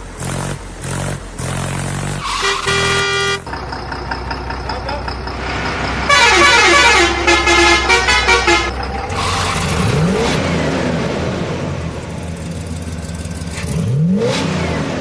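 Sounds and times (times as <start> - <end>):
engine revving: 0.0 - 15.0
vehicle horn playing a tune: 2.2 - 3.5, 6.1 - 8.8.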